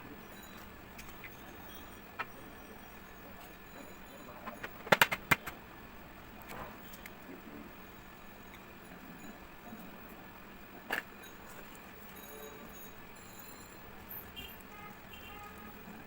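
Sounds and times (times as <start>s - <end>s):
utensils and dishware clattering: 0.4s - 5.5s.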